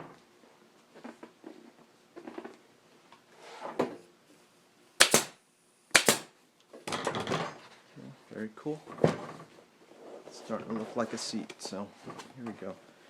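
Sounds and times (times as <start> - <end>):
staple gun firing: 5.0 - 5.4, 6.0 - 6.3.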